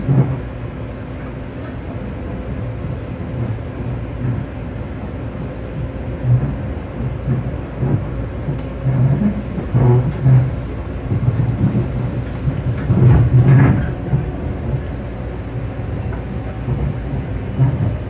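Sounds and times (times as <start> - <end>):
train rattling: 0.0 - 18.0
train wheels rumbling on rail: 0.0 - 18.0.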